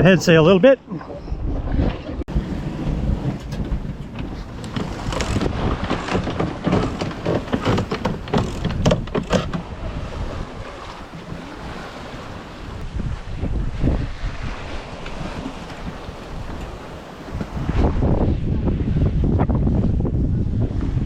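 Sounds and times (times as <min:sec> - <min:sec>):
sea water rushing: 0:00.0 - 0:19.0
wind buffeting microphone: 0:00.0 - 0:21.0
short sharp knocks and clicks: 0:03.4 - 0:09.6.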